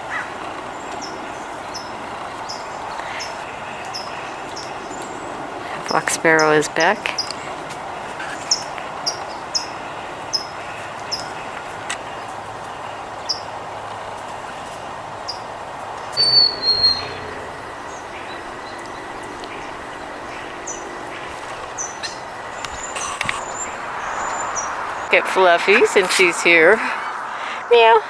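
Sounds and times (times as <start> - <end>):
steady background noise: 0.0 - 28.0
songbird chip notes: 15.2 - 25.2
bird whistled call: 16.0 - 20.9.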